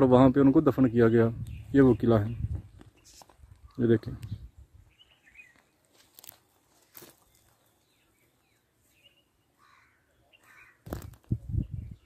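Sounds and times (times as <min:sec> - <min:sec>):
faint bird chirps: 0:00.7 - 0:05.9, 0:06.8 - 0:12.0
faint crunches: 0:05.4 - 0:08.0, 0:10.5 - 0:11.4.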